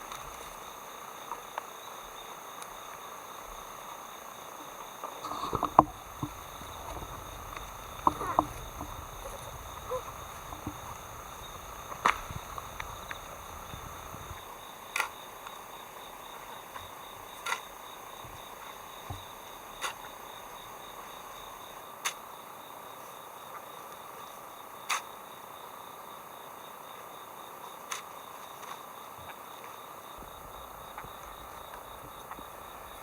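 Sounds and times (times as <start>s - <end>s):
insects chirring: 0.0s - 33.0s
knocks and clicks: 5.3s - 14.2s.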